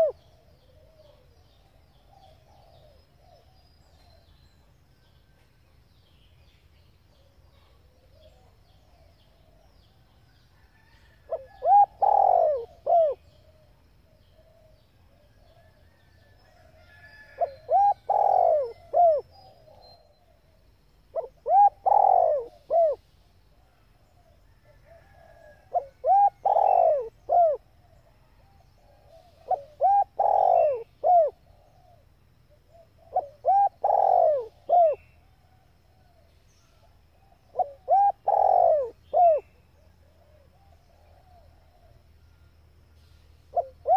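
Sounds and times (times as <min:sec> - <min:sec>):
dove cooing: 0:00.0 - 0:03.5, 0:11.3 - 0:13.7, 0:17.3 - 0:19.8, 0:21.1 - 0:23.0, 0:24.8 - 0:35.1, 0:37.1 - 0:42.0, 0:43.5 - 0:43.9.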